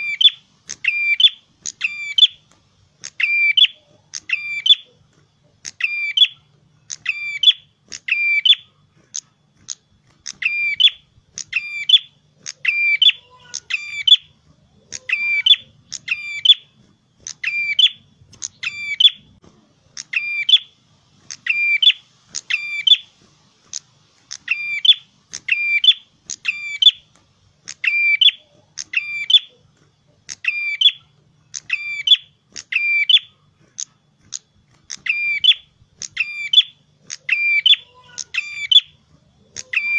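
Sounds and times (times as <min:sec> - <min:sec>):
songbird calling sharply: 0:00.0 - 0:02.4, 0:03.0 - 0:04.9, 0:21.3 - 0:23.1, 0:24.4 - 0:27.0, 0:35.0 - 0:38.9.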